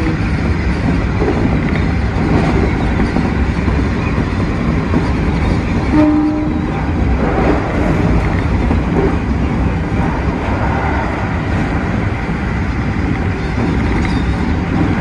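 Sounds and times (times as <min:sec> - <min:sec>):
train wheels rumbling on rail: 0:00.0 - 0:15.0
train horn blast: 0:05.9 - 0:06.7.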